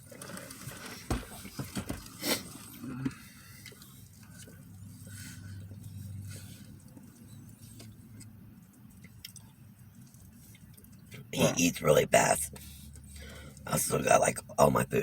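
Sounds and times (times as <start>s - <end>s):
low hum inside parked car: 0.0s - 15.0s
rustles and clicks of food eaten: 0.0s - 15.0s.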